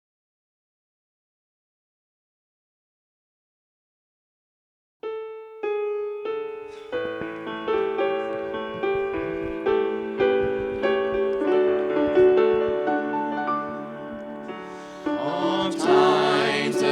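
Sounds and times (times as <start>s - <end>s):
piano playing: 5.0s - 16.9s.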